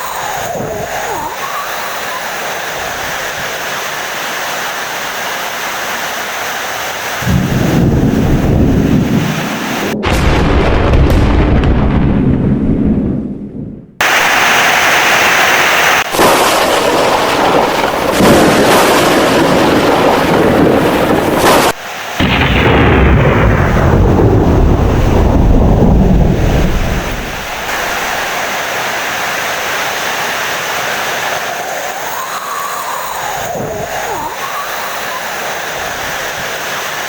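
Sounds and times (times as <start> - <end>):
heavy rain: 0.0 - 10.6, 14.0 - 37.0
rolling thunder: 7.2 - 14.5, 16.1 - 28.4.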